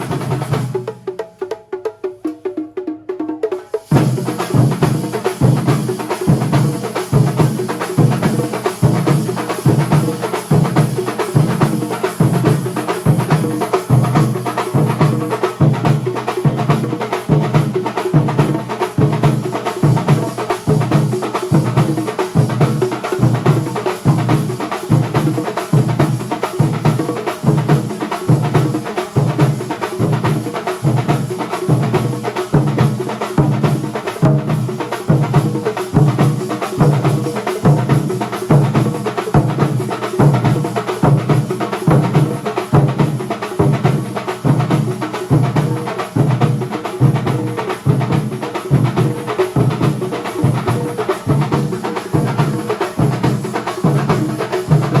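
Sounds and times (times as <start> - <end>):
percussion ensemble drumming: 0.0 - 55.0.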